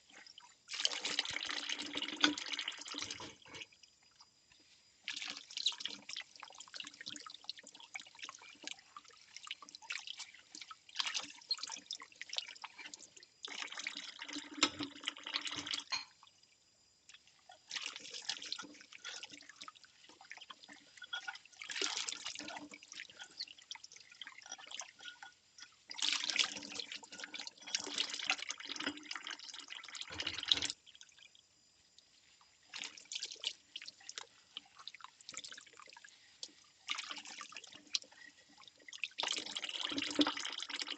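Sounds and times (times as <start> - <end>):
water splashing and dripping: 5.1 - 15.8.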